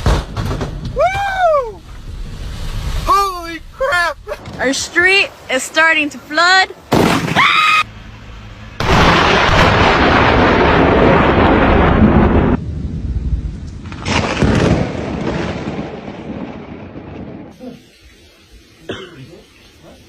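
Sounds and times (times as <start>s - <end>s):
thunder cracking and rumbling: 0.0s - 5.3s, 8.8s - 17.6s.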